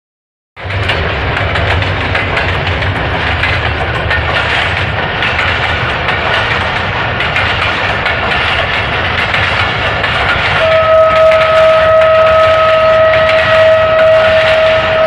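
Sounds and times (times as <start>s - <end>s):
train wheels on rail: 0.6s - 15.0s.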